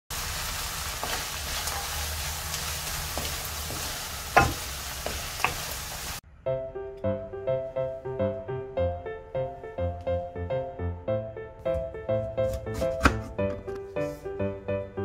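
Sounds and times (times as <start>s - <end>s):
food sizzling in a wok: 0.1s - 6.2s
spatula stirring: 0.8s - 5.7s
spatula knocking against pan: 3.2s - 5.6s
background music: 6.2s - 15.0s.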